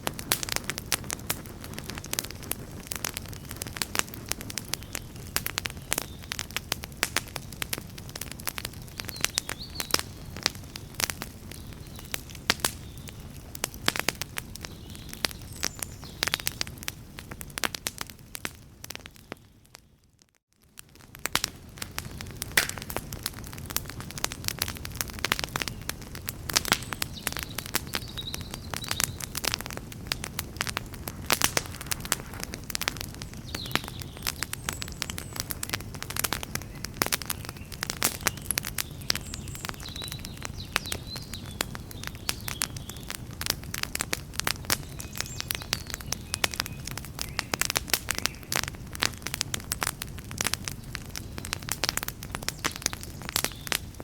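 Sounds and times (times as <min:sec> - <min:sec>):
low rumble of flames: 0:00.0 - 0:19.9, 0:20.5 - 0:54.0
campfire crackling and popping: 0:00.0 - 0:54.0.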